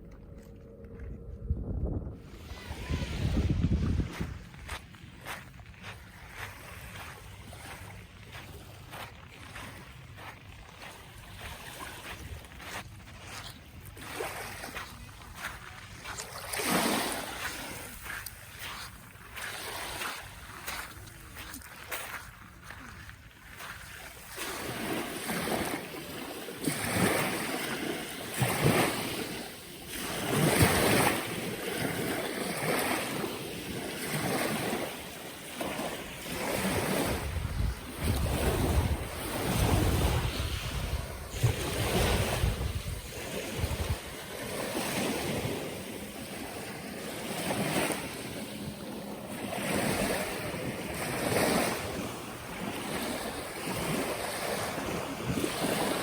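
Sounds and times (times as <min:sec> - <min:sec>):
wind buffeting microphone: 0:00.9 - 0:09.0, 0:35.7 - 0:46.7
sea waves breaking on beach: 0:02.3 - 0:56.0.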